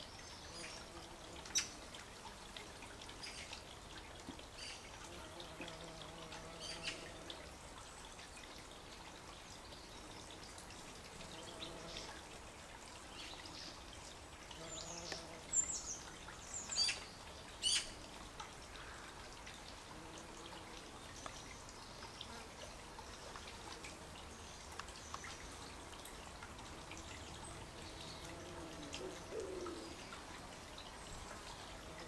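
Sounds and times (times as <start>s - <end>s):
garden birds singing: 0.0s - 12.2s, 12.9s - 18.1s, 20.0s - 32.0s
faint steady hiss: 0.0s - 32.0s.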